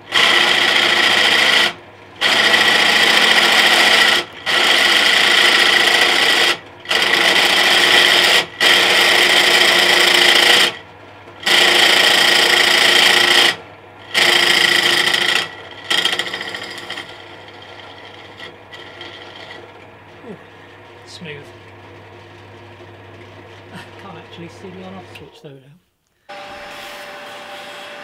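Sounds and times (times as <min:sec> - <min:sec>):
drill motor running: 0:00.0 - 0:10.8, 0:11.4 - 0:25.2, 0:26.3 - 0:28.0
drill grinding through metal: 0:00.1 - 0:10.8, 0:11.4 - 0:20.6.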